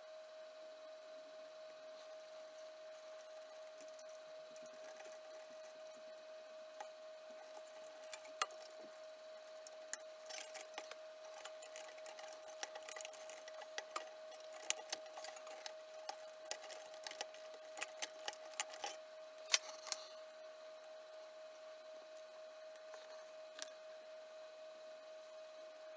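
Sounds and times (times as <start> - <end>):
faint steady whine: 0.0 - 25.9
metallic clicks of tools: 9.9 - 20.1.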